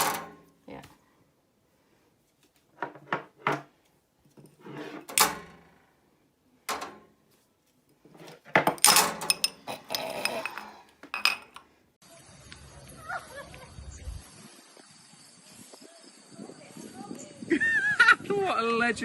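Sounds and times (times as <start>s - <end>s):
clattering knocks: 6.7s - 7.1s.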